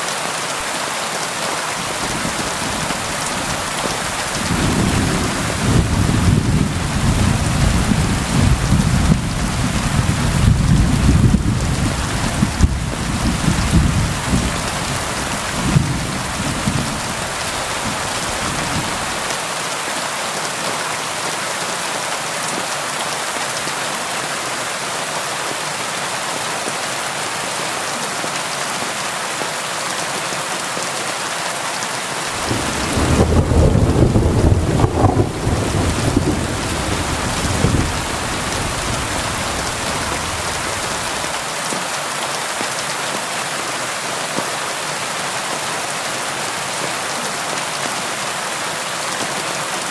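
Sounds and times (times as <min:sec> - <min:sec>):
steady rain falling: 0:00.0 - 0:49.9
thunder rolling: 0:01.9 - 0:19.3, 0:32.4 - 0:41.3.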